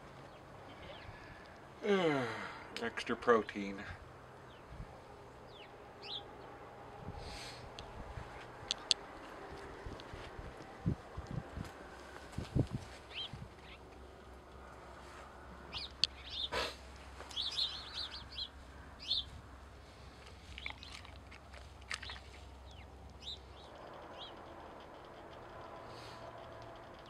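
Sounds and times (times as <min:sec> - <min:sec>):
faint low hum: 0:00.0 - 0:27.0
small birds chirping: 0:00.1 - 0:01.6, 0:05.4 - 0:06.6, 0:13.0 - 0:14.6, 0:15.6 - 0:27.0.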